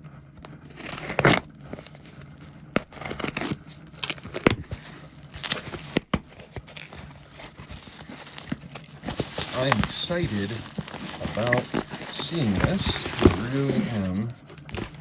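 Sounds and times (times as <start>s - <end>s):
packaging rustling and tearing: 0.7s - 15.0s.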